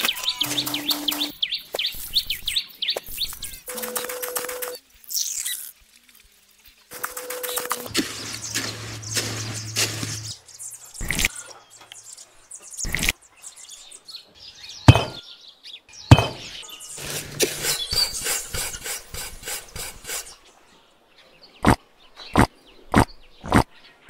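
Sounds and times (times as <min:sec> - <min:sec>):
sharp knocks of bricks: 0:14.9 - 0:15.2, 0:16.1 - 0:16.5
trowel scraping and clicking: 0:17.0 - 0:20.4.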